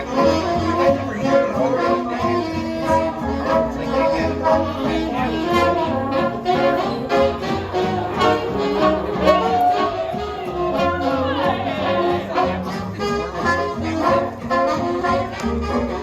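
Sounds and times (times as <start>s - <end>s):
brass band jazz: 0.0s - 16.0s
pulsing bass: 0.0s - 16.0s.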